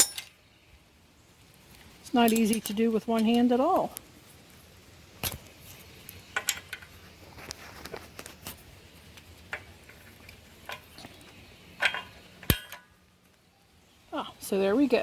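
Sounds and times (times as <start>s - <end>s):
metal pins clinking: 0.0s - 0.4s, 2.2s - 3.5s, 11.8s - 13.0s.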